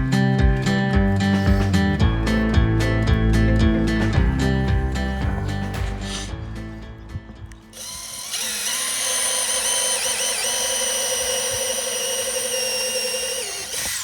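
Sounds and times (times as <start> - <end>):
background music: 0.0 - 8.2
power drill spinning: 7.8 - 14.0.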